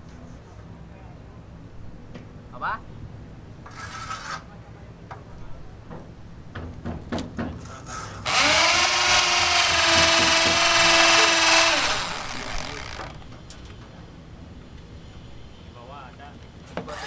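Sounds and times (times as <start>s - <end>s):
electric power tool running: 8.2s - 13.3s.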